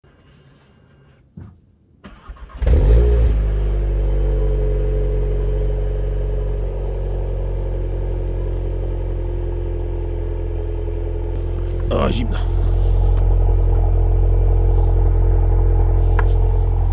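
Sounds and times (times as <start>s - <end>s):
car engine cranking: 2.1s - 3.3s, 11.3s - 16.9s
car engine revving and idling: 2.4s - 16.9s.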